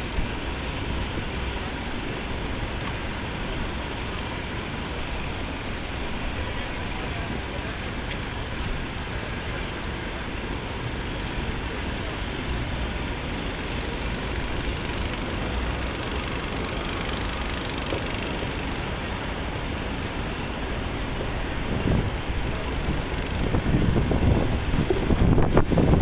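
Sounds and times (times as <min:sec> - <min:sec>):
passing traffic: 0:00.0 - 0:26.0
wind buffeting the microphone: 0:21.1 - 0:26.0.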